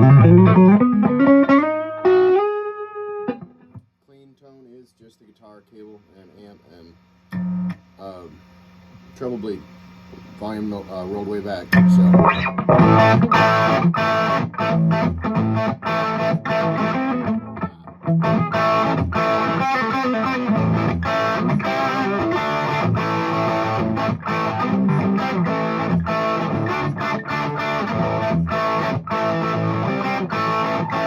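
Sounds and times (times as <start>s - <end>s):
clean electric guitar: 0.0s - 3.8s, 9.8s - 31.0s.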